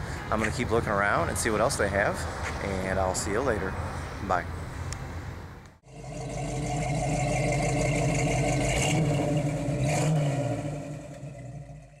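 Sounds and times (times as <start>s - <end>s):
car engine running: 5.8s - 12.0s.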